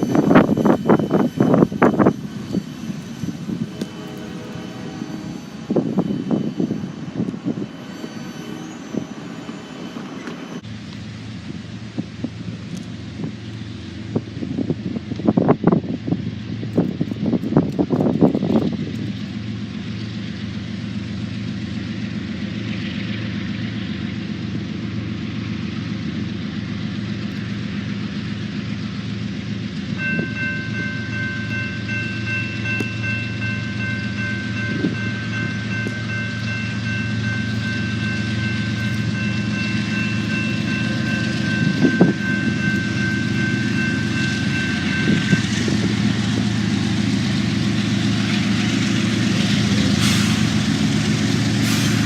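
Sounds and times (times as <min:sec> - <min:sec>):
diesel locomotive engine hum: 0:00.0 - 0:52.0
train rumbling past: 0:00.0 - 0:52.0
multi-note train horn: 0:03.6 - 0:05.9
thin high tones: 0:30.0 - 0:45.5.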